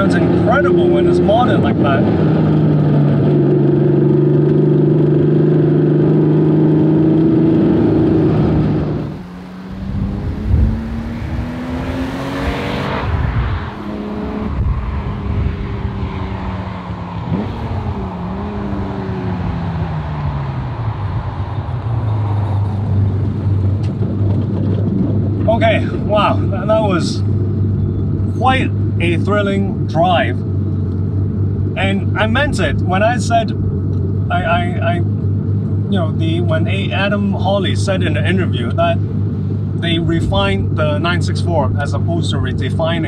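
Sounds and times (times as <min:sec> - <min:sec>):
car engine revving: 0:00.0 - 0:32.4.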